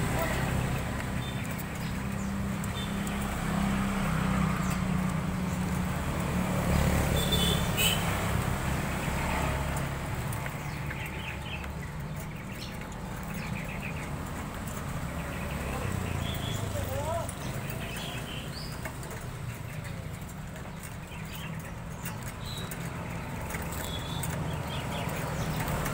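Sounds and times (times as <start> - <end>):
small bird chirping: 9.0 - 25.9.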